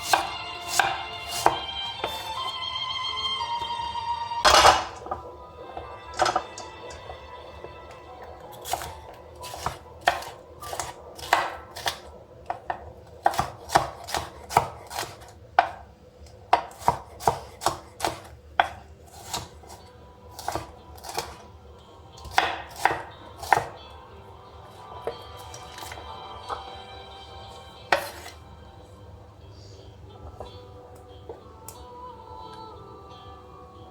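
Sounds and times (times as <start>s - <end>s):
utensils tapping on dishware: 4.5s - 7.9s.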